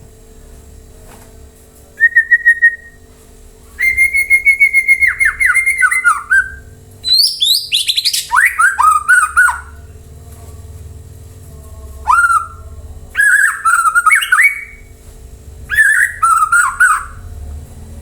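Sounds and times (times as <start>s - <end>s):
bird singing whistled notes: 2.0s - 3.0s, 3.8s - 9.9s, 12.0s - 14.9s, 15.7s - 17.3s.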